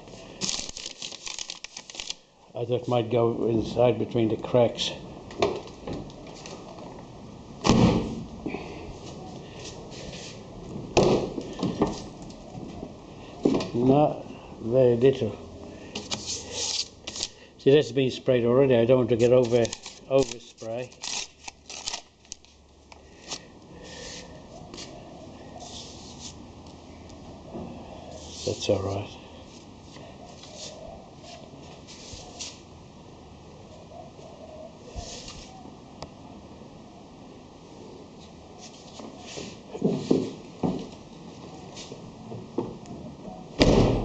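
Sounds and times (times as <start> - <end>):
paper rustling and crinkling: 0.2 - 2.2, 16.0 - 17.4, 19.1 - 22.6.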